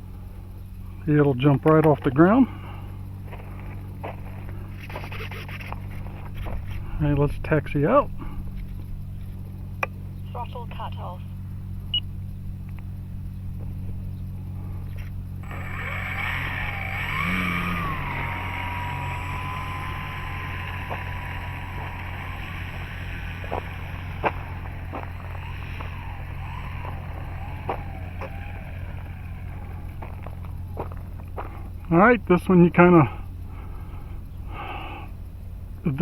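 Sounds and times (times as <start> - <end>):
model plane electric motor whining: 2.4 - 7.0, 14.8 - 31.4
sharp clicks: 15.0 - 30.7.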